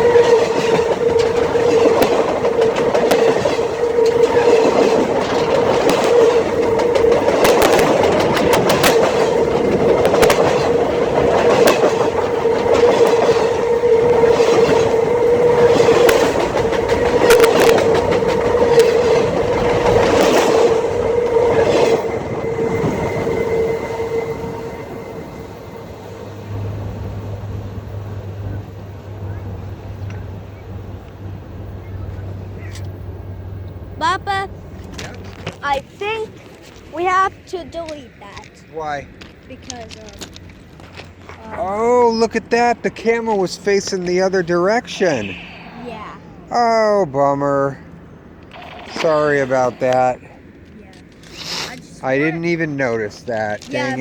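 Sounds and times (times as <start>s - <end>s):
train wheels clacking over rail: 0.0s - 25.8s, 34.0s - 45.4s
ringing tone from wheels: 0.0s - 26.7s, 47.8s - 50.3s.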